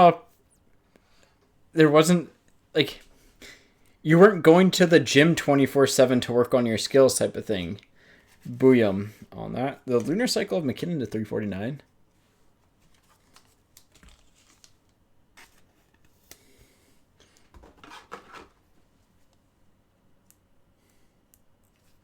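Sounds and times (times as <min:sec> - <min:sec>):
cards rustling and clicking: 0:12.6 - 0:18.6.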